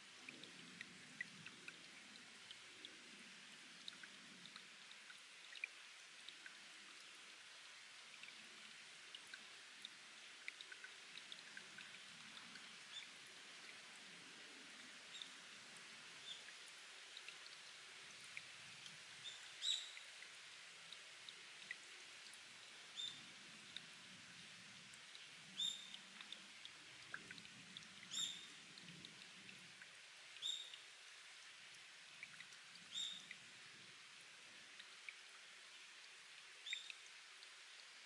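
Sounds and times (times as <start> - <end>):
faint steady hiss: 0.0 - 38.0
water dripping into a pool: 0.0 - 38.0.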